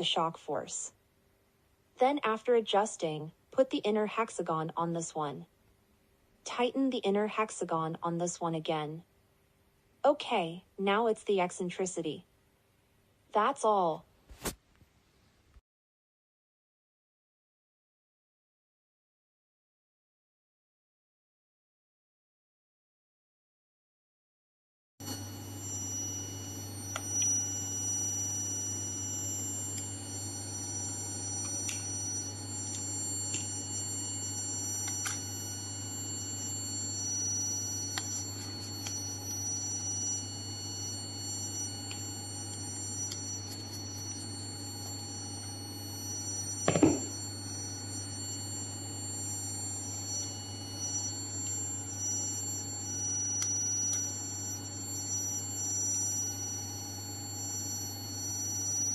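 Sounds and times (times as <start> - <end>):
loud knock: 46.7 - 47.1.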